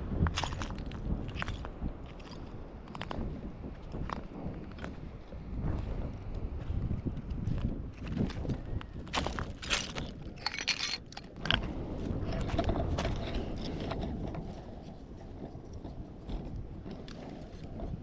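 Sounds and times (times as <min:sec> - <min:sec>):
wind rumbling on microphone: 0:00.0 - 0:18.0
footsteps crunching on sand: 0:00.2 - 0:10.4.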